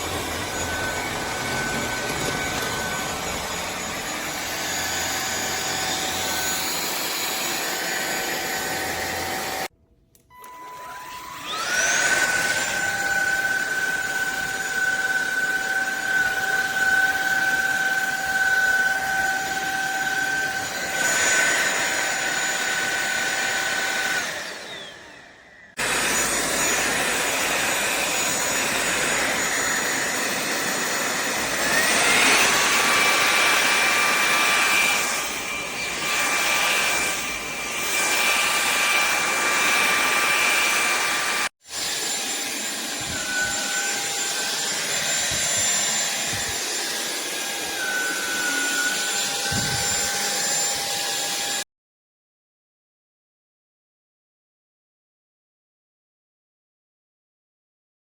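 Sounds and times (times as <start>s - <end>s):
vacuum suction noise: 0.0s - 9.6s
vacuum motor high whine: 0.0s - 9.7s, 10.3s - 51.6s.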